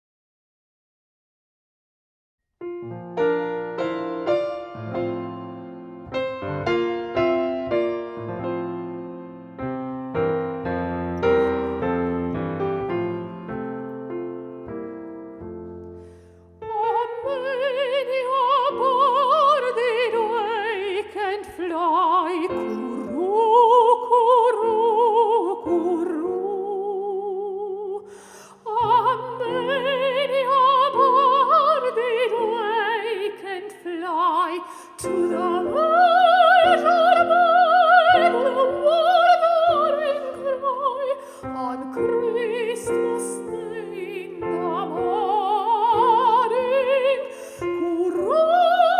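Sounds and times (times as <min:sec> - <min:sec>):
soft piano: 0:02.6 - 0:28.0, 0:34.4 - 0:48.9
soprano singing a carol: 0:16.6 - 0:48.9.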